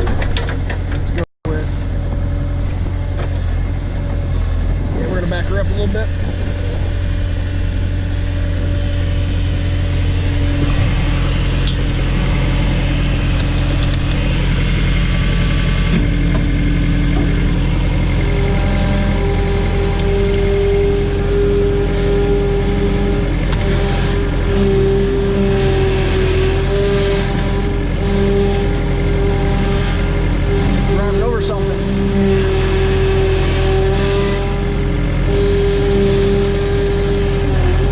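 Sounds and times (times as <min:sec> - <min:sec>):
backhoe engine running: 0:00.0 - 0:37.9
high whine: 0:01.5 - 0:37.9.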